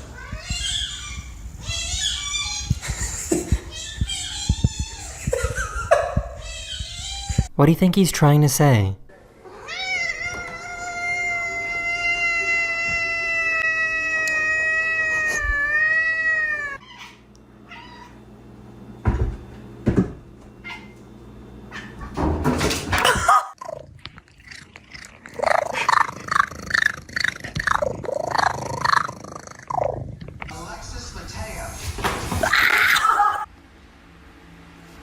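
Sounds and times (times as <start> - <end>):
cat long meow: 9.5 - 17.0.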